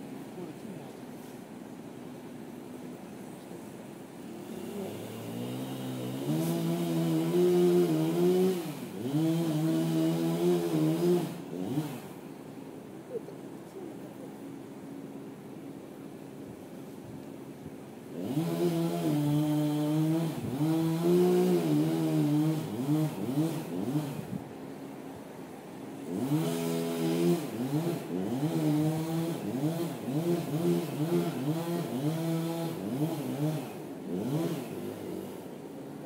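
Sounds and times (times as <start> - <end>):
gasoline engine revving: 4.4 - 12.2, 18.1 - 24.4, 26.0 - 35.6.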